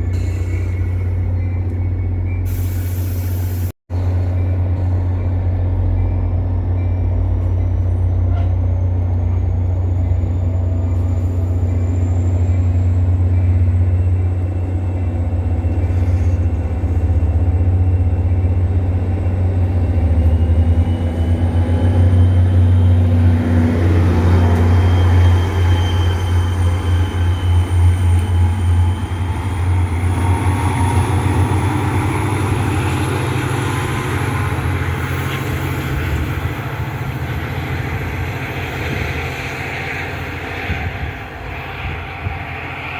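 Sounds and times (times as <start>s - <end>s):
train rumble with rising whine: 0.0s - 42.9s
wind buffeting microphone: 28.4s - 42.9s.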